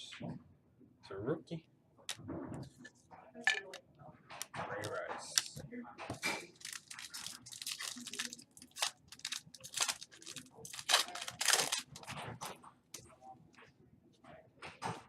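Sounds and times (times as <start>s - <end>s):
foil wrappers tearing and crinkling: 6.2s - 12.2s.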